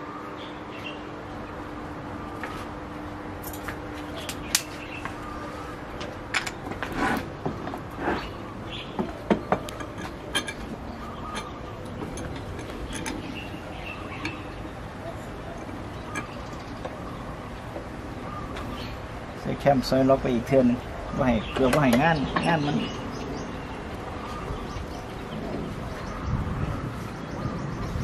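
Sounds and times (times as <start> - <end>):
birds chirping faintly: 7.3 - 28.0.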